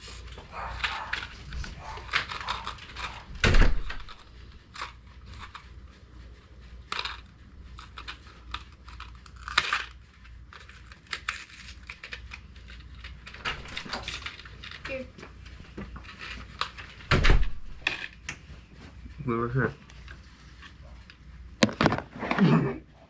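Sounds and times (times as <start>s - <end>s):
rustling and handling noises: 0.0s - 22.7s.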